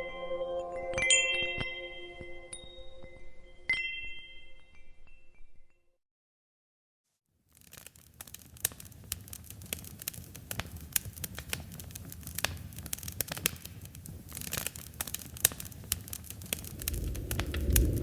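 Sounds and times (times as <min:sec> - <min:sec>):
wood crackling and popping: 0:07.5 - 0:18.0
campfire flames rumbling: 0:07.6 - 0:18.0.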